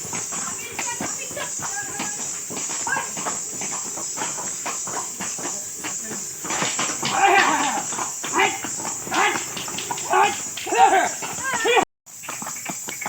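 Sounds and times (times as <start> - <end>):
horse hooves stamping on ground: 0.0 - 13.0
people's voices: 0.3 - 3.4, 5.3 - 11.8.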